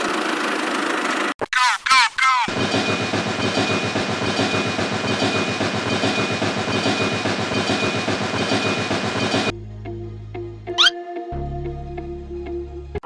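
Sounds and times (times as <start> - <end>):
small machine clattering and whining: 2.5 - 9.5.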